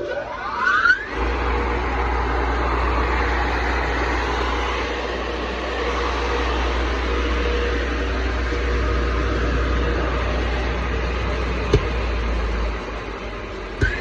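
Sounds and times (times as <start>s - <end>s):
baler motor whining and humming: 0.0s - 14.0s.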